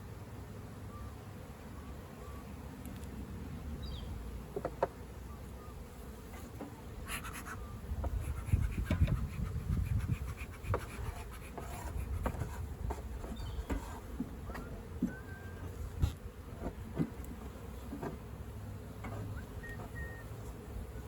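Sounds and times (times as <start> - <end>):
honeybees buzzing: 0.1 - 21.0
hive tool scraping wooden frames: 6.0 - 20.7.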